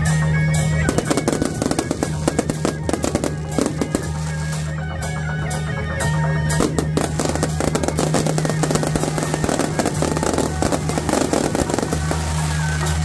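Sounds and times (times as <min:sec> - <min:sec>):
background music: 0:00.0 - 0:13.0
fireworks popping and crackling: 0:00.6 - 0:05.2, 0:05.9 - 0:13.0.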